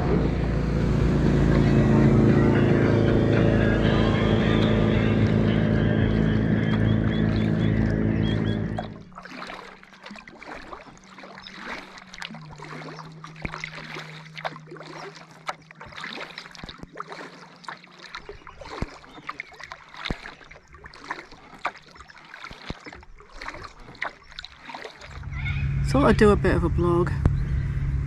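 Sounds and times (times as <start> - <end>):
steady low hum: 0.0 - 9.2, 25.0 - 28.0
paddle splashes and drips: 0.0 - 25.5.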